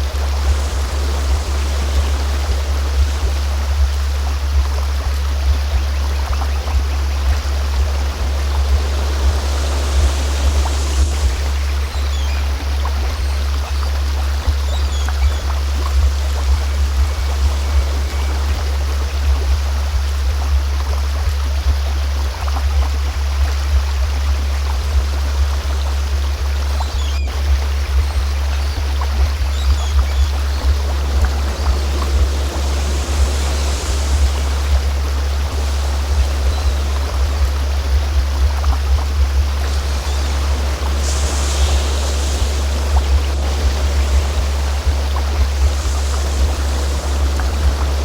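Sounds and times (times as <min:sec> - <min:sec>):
low humming tone: 0:00.0 - 0:48.0
stream flowing: 0:00.0 - 0:48.0
steady deep tone: 0:25.1 - 0:48.0.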